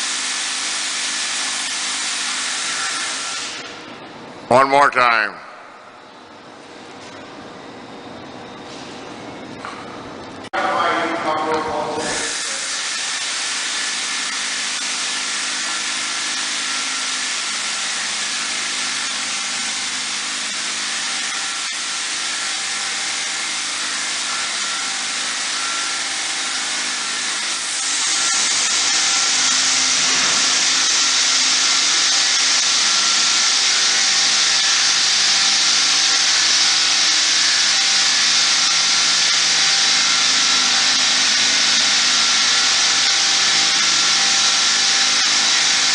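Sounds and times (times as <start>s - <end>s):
sprayer motor hum: 11.4s - 45.9s.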